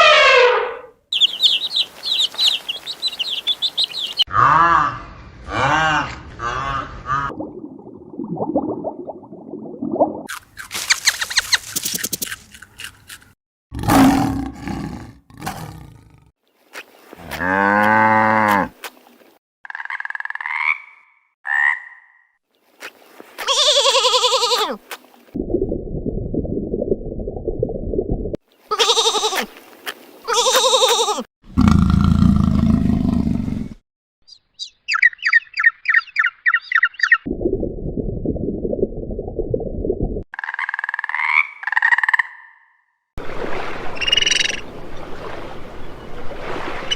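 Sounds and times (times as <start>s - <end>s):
low rough roaring: 13.7s - 16.3s.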